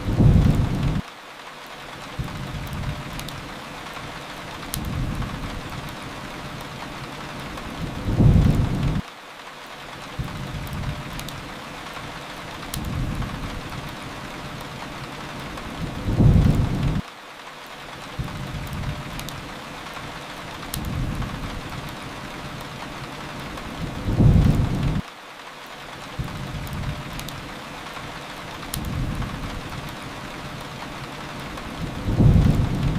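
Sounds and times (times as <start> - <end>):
low rumbling thunder: 0.0 - 1.0, 7.8 - 9.0, 15.8 - 17.0, 23.7 - 25.0, 31.7 - 32.9
fireplace crackles: 0.0 - 32.9
steady rain hiss: 0.0 - 32.9.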